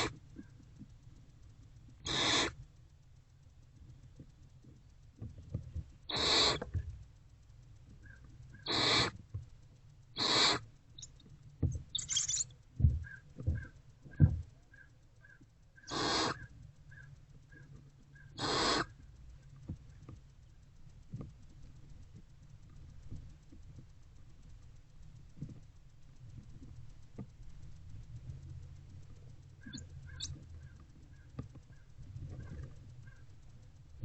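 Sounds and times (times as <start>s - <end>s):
faint regular peeping: 0.0s - 34.0s
owlet hissing screeches: 2.1s - 2.6s, 6.1s - 6.6s, 8.7s - 9.2s, 10.2s - 10.6s, 12.0s - 12.4s, 15.9s - 16.5s, 18.4s - 18.9s.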